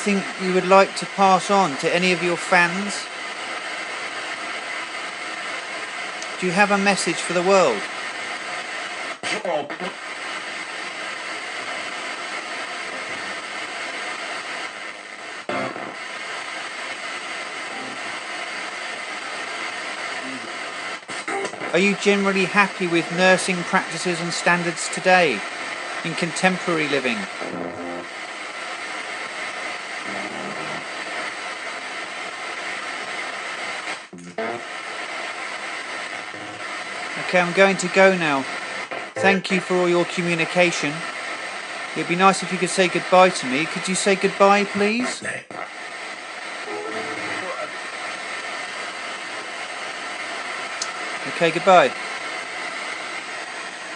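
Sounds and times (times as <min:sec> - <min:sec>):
radio static hiss: 0:00.0 - 0:53.9
chopped radio fragments: 0:36.1 - 0:40.9.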